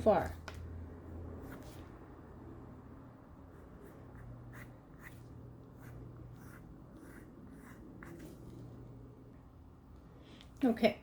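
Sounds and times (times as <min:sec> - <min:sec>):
pencil strokes on paper: 0:03.4 - 0:08.9.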